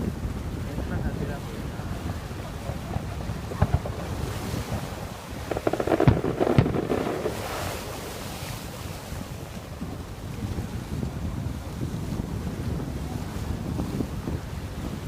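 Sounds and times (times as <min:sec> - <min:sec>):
wind noise on microphone: 0:00.0 - 0:15.0
fizzing crackle: 0:02.2 - 0:09.8
loud firework bangs: 0:02.9 - 0:04.8, 0:05.4 - 0:08.0
fireworks cracks and pops: 0:05.5 - 0:07.8.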